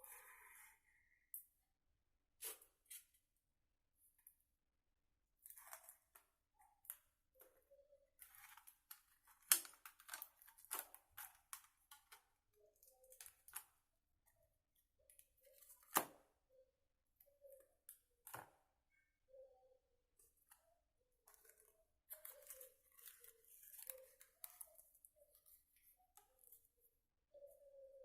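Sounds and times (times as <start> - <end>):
hands clicking and rustling materials: 8.2 - 13.7.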